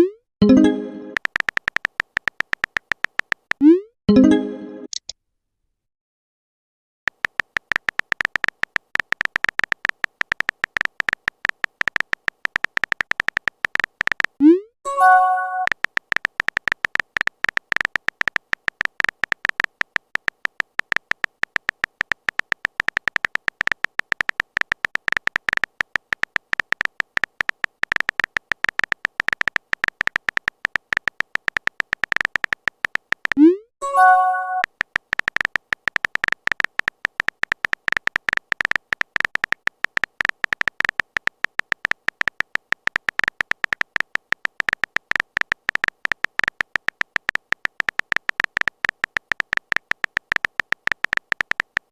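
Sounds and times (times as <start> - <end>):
message alert blip and chord: 0.0 - 1.2, 3.6 - 5.0, 14.4 - 15.7, 33.4 - 34.7
phone keyboard typing ticks: 0.0 - 5.1, 7.1 - 51.9.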